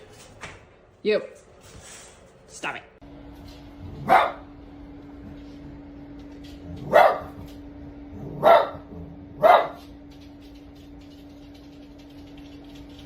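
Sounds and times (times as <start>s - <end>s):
faint hum: 2.4s - 13.0s
dog barking: 4.0s - 4.5s, 6.8s - 7.4s, 8.3s - 9.9s.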